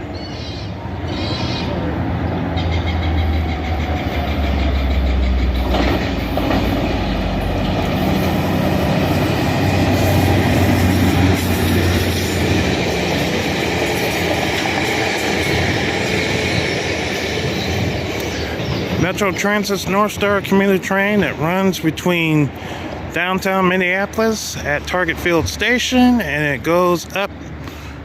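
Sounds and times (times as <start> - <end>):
diesel locomotive engine drone: 0.0 - 28.0
train wheels clattering on rails: 2.6 - 21.6.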